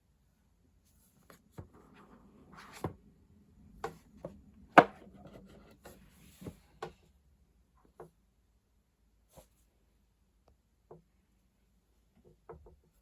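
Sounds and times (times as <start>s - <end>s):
box handling knocks and clicks: 4.8s - 5.4s.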